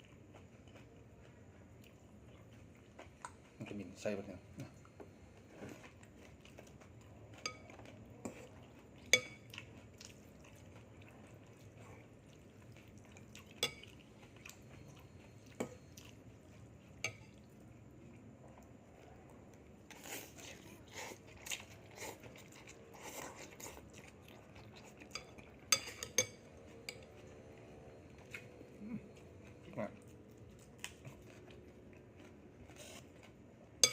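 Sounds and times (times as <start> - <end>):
crunchy chewing: 0.0 - 4.0, 4.6 - 33.9
cutlery clinking against a dish: 7.4 - 9.6, 13.5 - 14.0, 17.0 - 17.4, 25.0 - 27.2.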